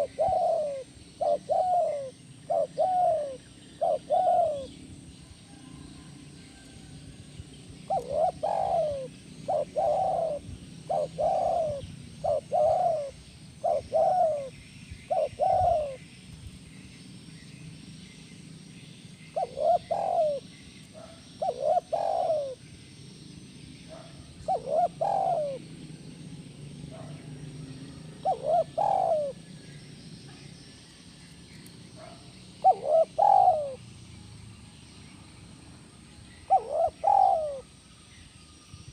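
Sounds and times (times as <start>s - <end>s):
dove cooing: 0.0s - 5.8s, 7.8s - 16.2s, 19.2s - 22.6s, 23.8s - 26.0s, 26.9s - 29.6s, 32.0s - 33.8s, 36.4s - 37.8s.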